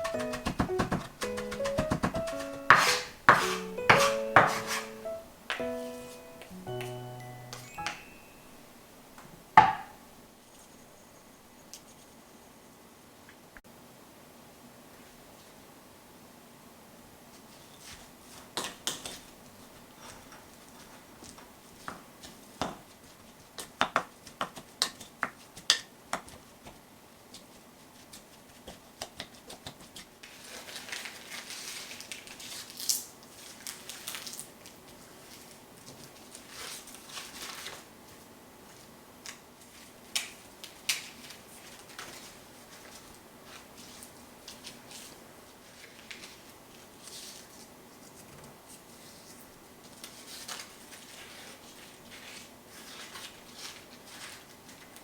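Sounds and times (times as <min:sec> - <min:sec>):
continuous rubbing noise: 0:00.0 - 0:05.1
utensils tapping and clicking: 0:00.0 - 0:08.2.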